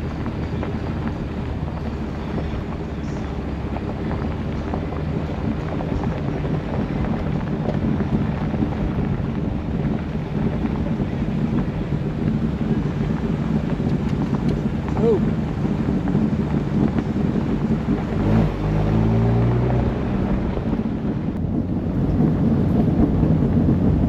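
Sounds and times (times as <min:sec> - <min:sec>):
engine rumble: 0:00.0 - 0:24.0
tyre and road noise: 0:00.0 - 0:24.0
wind noise on microphone: 0:00.0 - 0:24.0.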